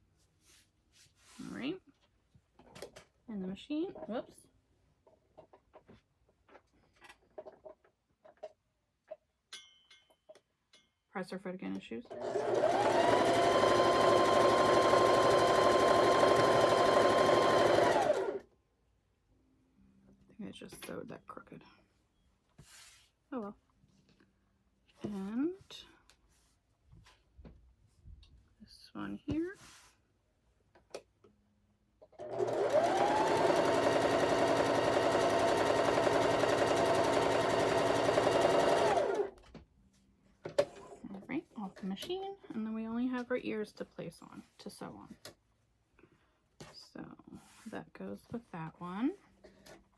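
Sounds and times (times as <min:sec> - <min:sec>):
sewing machine motor whine: 0:12.1 - 0:18.4, 0:32.2 - 0:39.3
sewing machine needle stitching: 0:12.1 - 0:18.4, 0:32.1 - 0:39.3.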